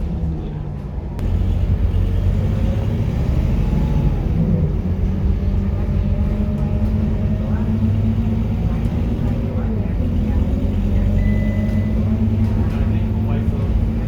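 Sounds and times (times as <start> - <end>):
bus diesel engine drone: 0.0 - 14.0.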